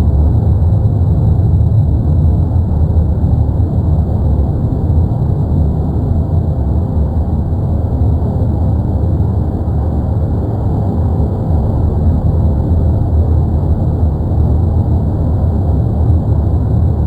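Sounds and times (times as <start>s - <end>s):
volcano rumbling: 0.0s - 17.0s.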